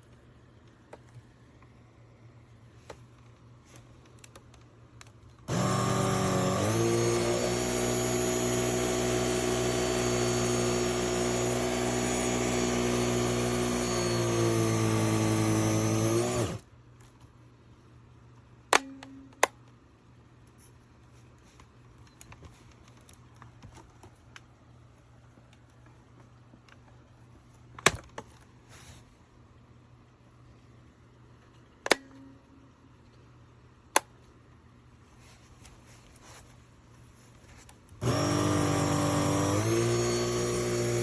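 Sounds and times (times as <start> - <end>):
vacuum cleaner running: 5.5 - 16.6, 38.0 - 41.0
vacuum motors winding down: 5.5 - 16.6, 38.0 - 41.0.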